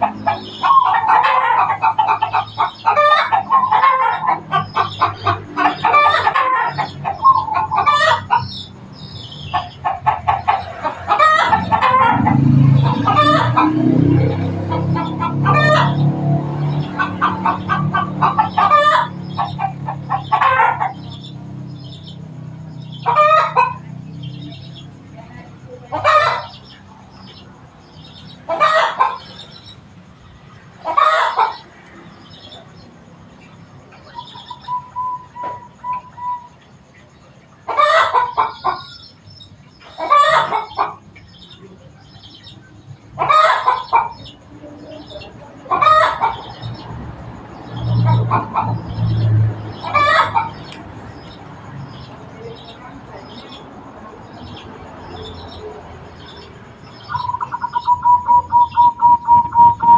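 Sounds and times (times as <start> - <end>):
chicken calling: 0.0 - 24.9, 25.9 - 32.8, 33.9 - 47.0, 47.6 - 59.9
doves cooing: 54.8 - 59.9.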